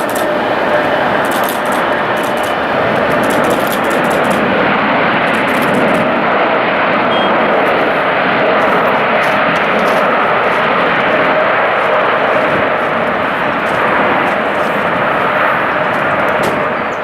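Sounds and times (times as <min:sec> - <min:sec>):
high crackles: 0:00.0 - 0:06.0
faint whine: 0:00.0 - 0:17.0
jet engines roaring: 0:00.0 - 0:17.0.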